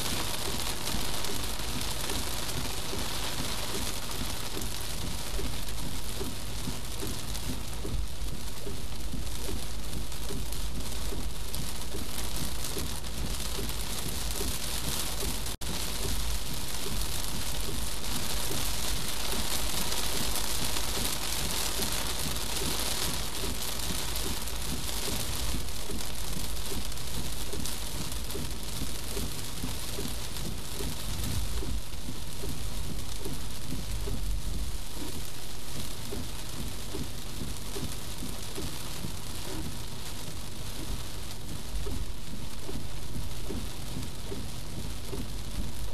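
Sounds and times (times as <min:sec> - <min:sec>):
heavy rain drumming on car: 0:00.0 - 0:45.9
low rumble of car and road: 0:00.0 - 0:45.9.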